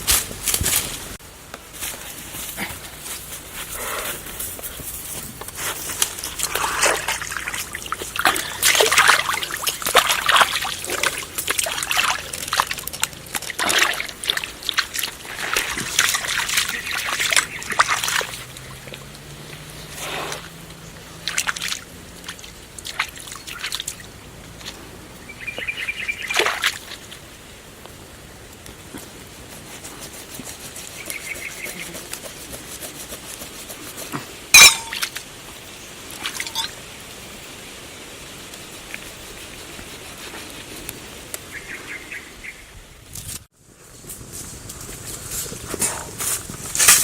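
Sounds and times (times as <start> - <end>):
water splashing and sloshing: 1.9 - 27.8, 33.2 - 36.9.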